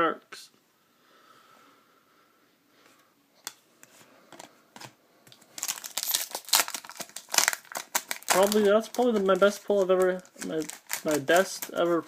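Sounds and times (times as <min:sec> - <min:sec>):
plastic wrapper crinkling: 0:05.3 - 0:12.0.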